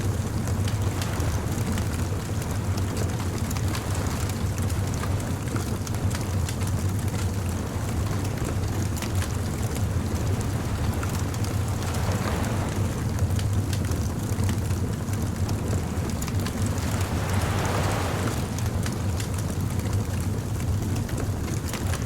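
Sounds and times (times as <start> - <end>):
surf rumbling: 0.0 - 22.0
wood fire crackling and popping: 13.2 - 18.2.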